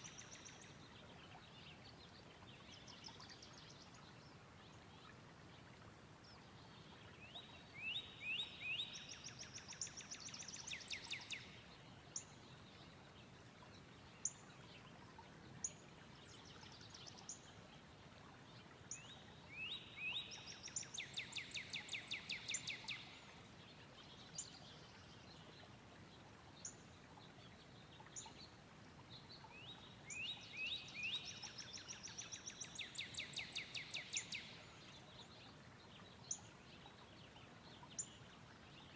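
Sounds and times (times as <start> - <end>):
faint steady hiss: 0.0 - 38.9
songbird singing with trill: 7.2 - 11.6, 18.9 - 23.2, 29.3 - 36.5.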